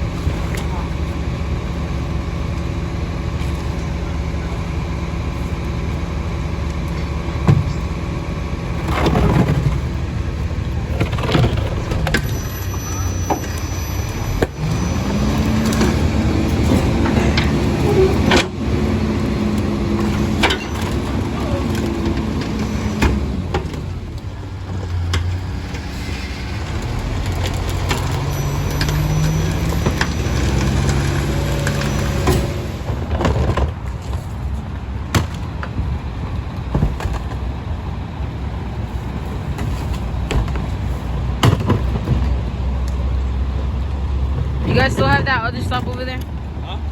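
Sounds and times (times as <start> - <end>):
diesel engine revving: 0.0 - 35.1.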